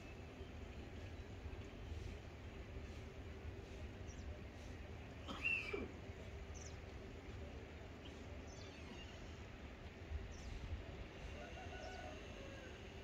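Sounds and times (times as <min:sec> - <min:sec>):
faint bird chirps: 0:08.0 - 0:09.4.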